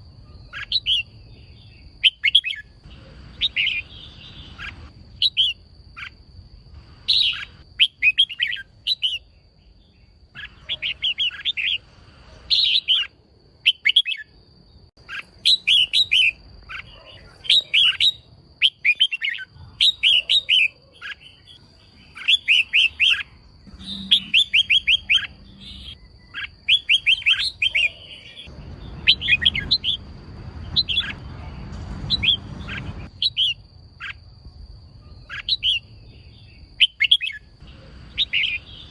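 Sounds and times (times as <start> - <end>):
bird chirping sharply: 0.3 - 6.2, 7.0 - 9.3, 10.0 - 14.3, 15.0 - 34.2, 35.0 - 38.9
faint high whine: 21.3 - 36.6.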